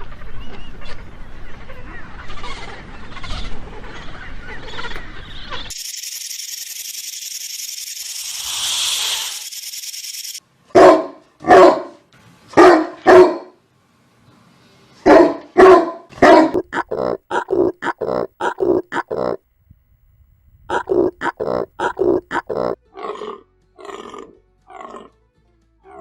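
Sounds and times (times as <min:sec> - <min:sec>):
steady high hiss: 0:05.7 - 0:10.4
dog barking: 0:10.7 - 0:12.0, 0:12.6 - 0:13.6, 0:15.0 - 0:16.8.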